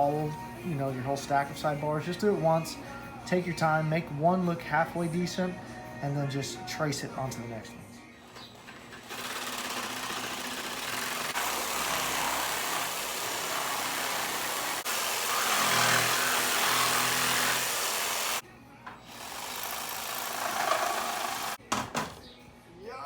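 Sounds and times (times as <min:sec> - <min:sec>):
jigsaw cutting wood: 0:09.0 - 0:18.4, 0:19.1 - 0:21.6.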